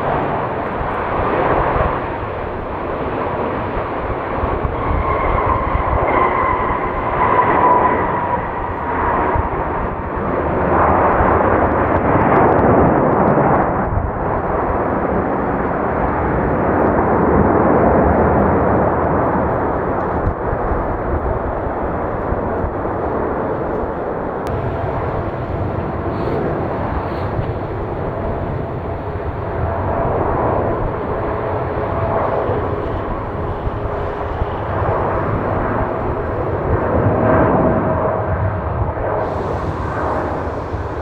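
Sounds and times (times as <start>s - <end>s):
jet engines rushing: 0.0s - 41.0s
faint whining tones: 24.4s - 37.3s.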